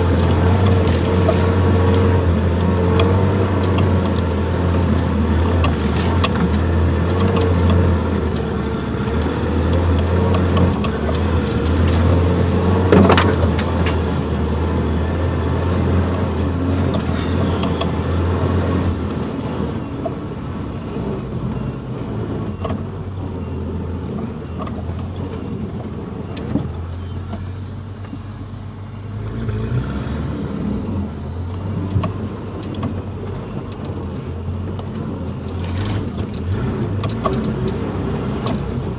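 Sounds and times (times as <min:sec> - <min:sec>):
knocks and rattles: 0:00.0 - 0:14.2
car engine at low revs: 0:00.0 - 0:38.9.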